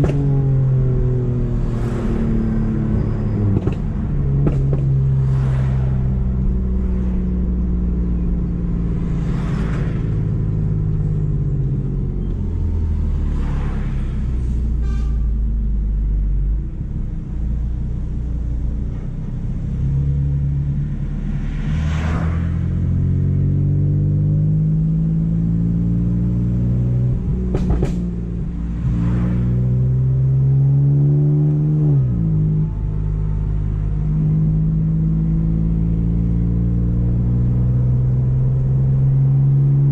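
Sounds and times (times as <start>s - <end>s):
car engine revving: 19.4s - 39.9s.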